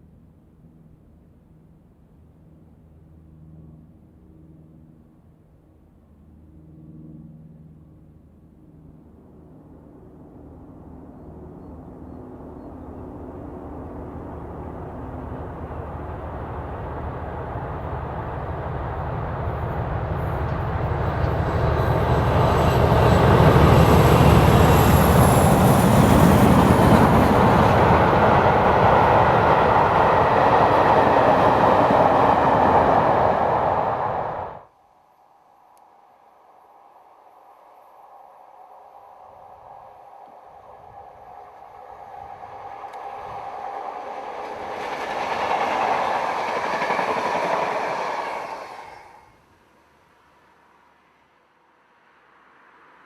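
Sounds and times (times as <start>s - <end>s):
rush of passing train: 9.7s - 34.7s, 36.2s - 53.0s
diesel locomotive engine: 11.5s - 34.7s, 38.2s - 49.5s.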